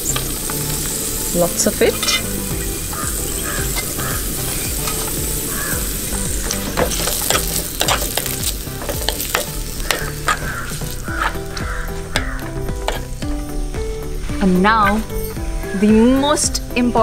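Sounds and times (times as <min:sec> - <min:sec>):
garlic sizzling in oil: 0:00.0 - 0:17.0
wooden spatula scraping a pot: 0:06.5 - 0:13.1.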